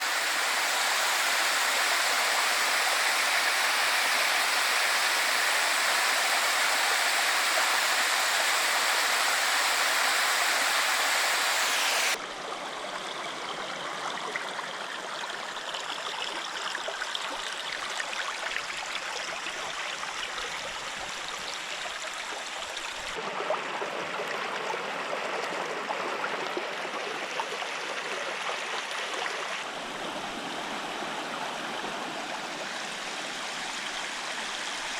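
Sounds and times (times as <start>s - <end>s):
rushing waterfall: 0.0s - 12.3s, 17.6s - 34.9s
flowing stream: 0.0s - 34.9s.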